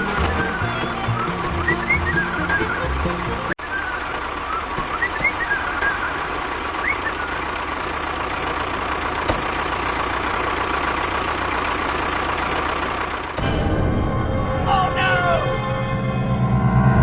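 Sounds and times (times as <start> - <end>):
engine idling: 0.0 - 16.7.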